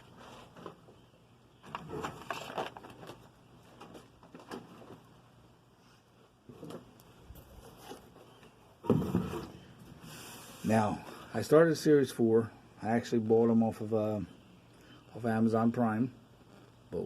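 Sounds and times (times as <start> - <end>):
rustling: 1.6 - 5.2, 5.8 - 11.2.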